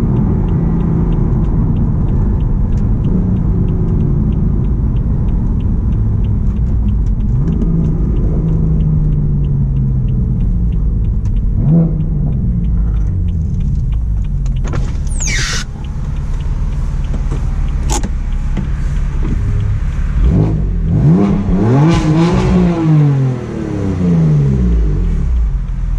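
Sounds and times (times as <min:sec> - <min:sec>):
car engine revving while driving: 0:00.0 - 0:25.9
sharp click: 0:04.6 - 0:19.8.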